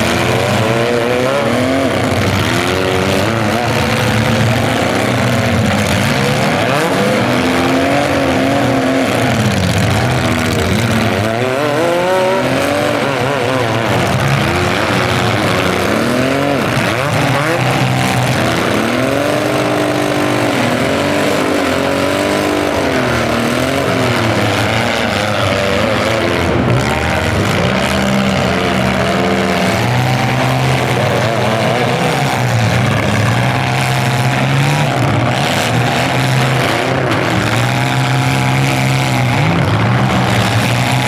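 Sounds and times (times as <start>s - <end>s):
car engines revving: 0.0s - 41.0s.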